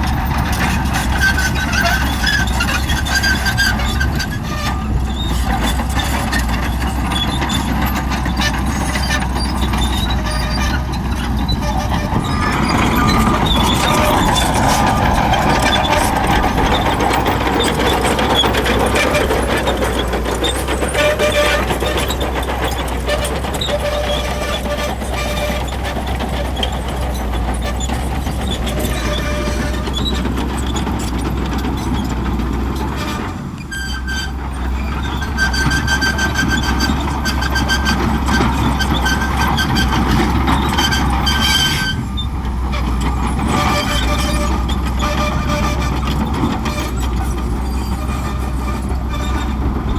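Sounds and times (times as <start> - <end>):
bulldozer diesel engine under load: 0.0 - 49.9
tracks clattering: 0.0 - 49.9
high-pitched squeals: 7.0 - 31.2.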